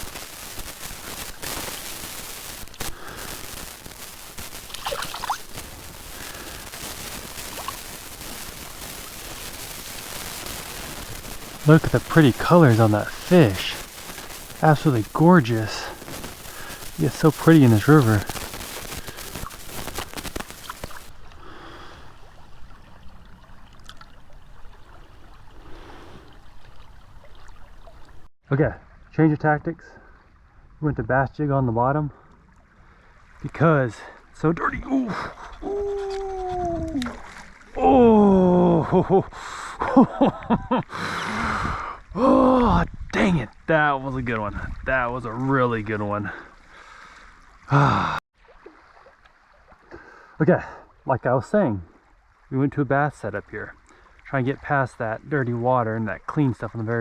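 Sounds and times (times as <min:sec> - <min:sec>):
loud crackling hiss: 0:00.0 - 0:22.5
rain pattering: 0:00.0 - 0:28.3, 0:37.9 - 0:41.5
river water flowing and gurgling: 0:02.6 - 0:18.1, 0:18.8 - 0:28.2, 0:48.4 - 0:51.1
sharp clicks: 0:11.0 - 0:21.1.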